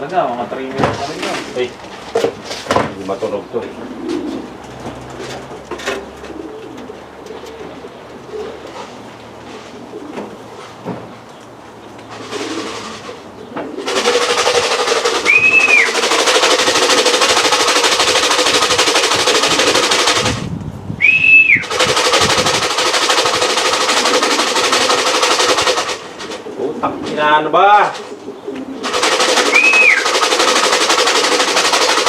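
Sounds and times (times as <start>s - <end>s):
grain rattling in shaken can: 13.9s - 20.4s, 21.6s - 26.0s, 28.9s - 32.0s
short high whistle tones: 15.3s - 16.0s, 21.0s - 21.7s, 29.5s - 30.0s.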